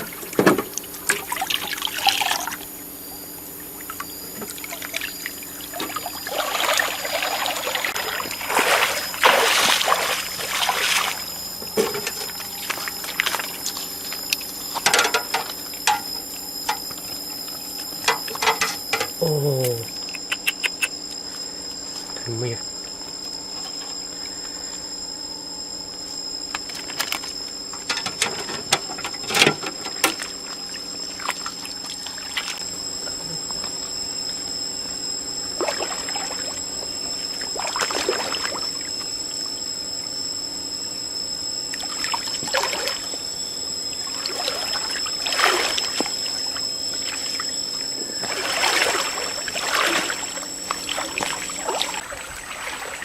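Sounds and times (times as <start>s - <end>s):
water splashing and trickling: 0.8s - 2.6s, 3.8s - 11.2s, 48.2s - 53.0s.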